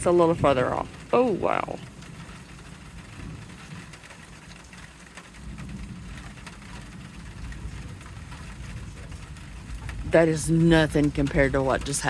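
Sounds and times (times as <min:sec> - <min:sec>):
distant thunder rumbling: 0:00.0 - 0:12.0.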